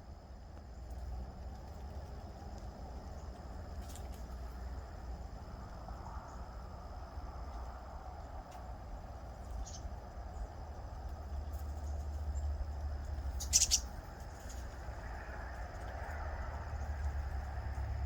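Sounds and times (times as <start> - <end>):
short sharp bird calls: 13.4 - 13.9.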